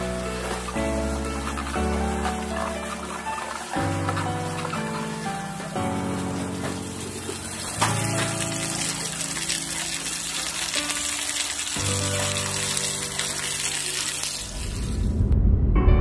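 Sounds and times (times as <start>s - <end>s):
chicken sizzling in frying pan: 0.0s - 14.9s
background music: 0.0s - 16.0s
low rumble: 14.5s - 16.0s.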